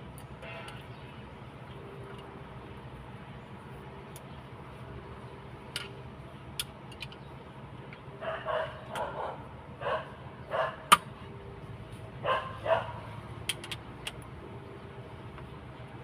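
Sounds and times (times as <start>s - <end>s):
dog barking: 8.2s - 10.9s, 12.2s - 13.1s.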